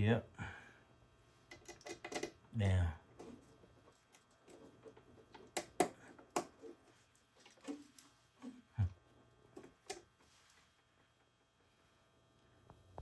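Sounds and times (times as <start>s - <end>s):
light clicks and taps of parts: 1.5s - 2.4s, 3.2s - 8.5s.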